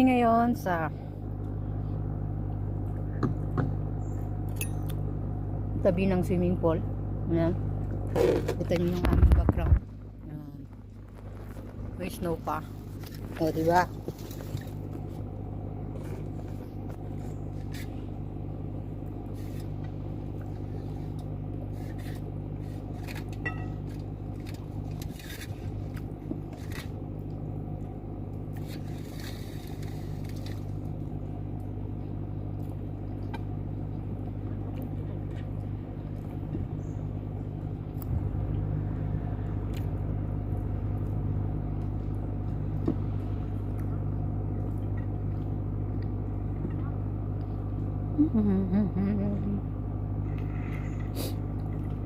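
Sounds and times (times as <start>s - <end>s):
low machine hum: 0.0s - 52.0s.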